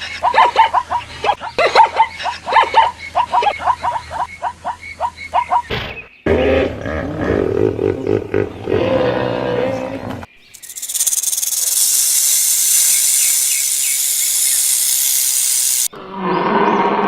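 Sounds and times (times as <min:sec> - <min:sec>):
high hissing buzz: 0:10.5 - 0:15.9.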